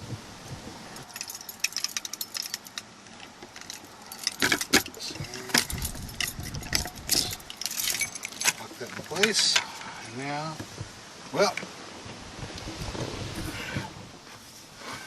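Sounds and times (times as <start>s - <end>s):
metallic clicks and rattles: 1.0s - 9.7s.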